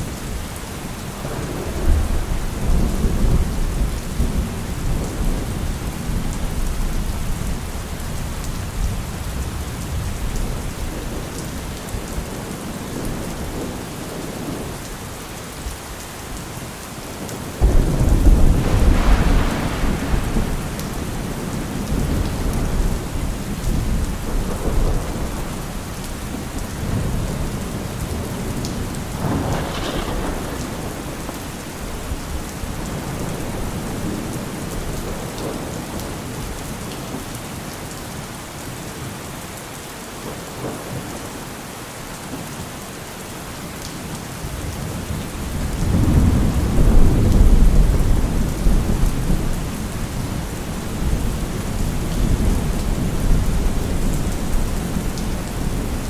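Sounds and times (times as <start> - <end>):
heavy rain falling: 0.0 - 56.0
rumbling thunder: 1.2 - 14.6, 17.6 - 36.5, 44.6 - 56.0.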